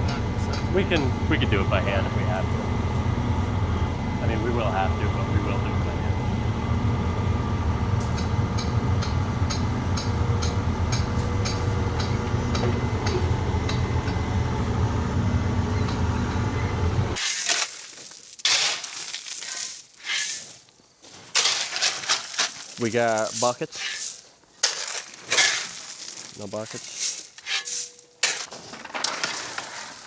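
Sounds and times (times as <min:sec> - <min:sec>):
heavy machinery engine running: 0:00.0 - 0:17.2
gritty crunching and scraping: 0:17.1 - 0:30.0.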